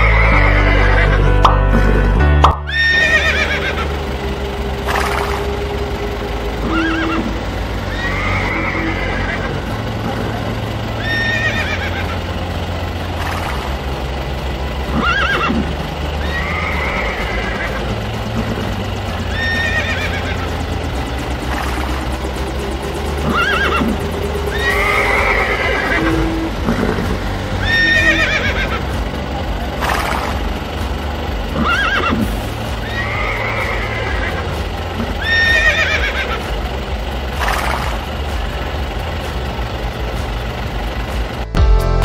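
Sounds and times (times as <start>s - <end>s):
horse whinnying: 0.0s - 1.2s, 2.7s - 3.8s, 6.6s - 7.3s, 7.9s - 9.6s, 11.0s - 12.2s, 14.9s - 17.8s, 19.3s - 20.6s, 23.2s - 28.8s, 31.6s - 34.4s, 35.1s - 36.4s
steady low hum: 0.0s - 42.0s.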